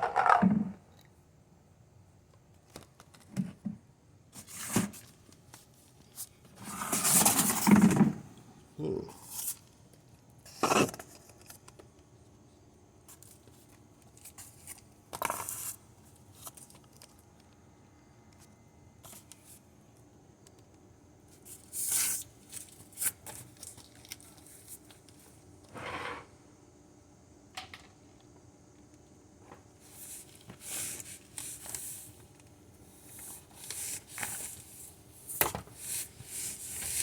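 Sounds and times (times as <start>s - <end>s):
handling scrapes and rustles: 4.4s - 8.0s, 29.8s - 32.3s, 32.9s - 37.0s.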